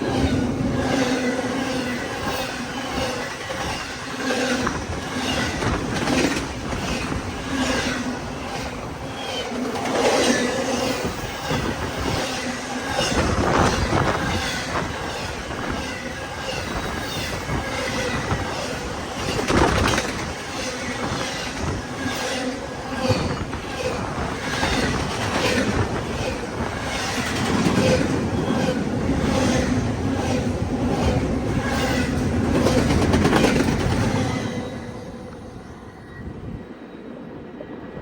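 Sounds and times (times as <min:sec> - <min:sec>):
train rumble: 0:00.0 - 0:38.0
train wheels clacking over rail joints: 0:29.4 - 0:34.2.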